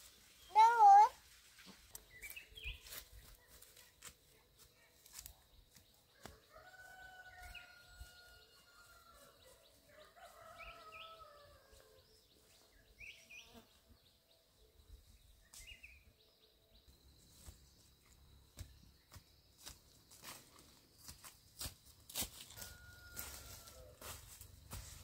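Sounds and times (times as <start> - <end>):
faint bird chirps: 0.0 - 19.7.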